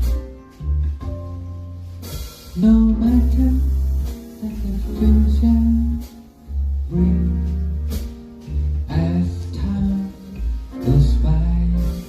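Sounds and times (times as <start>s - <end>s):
deep bass line: 0.0s - 12.0s.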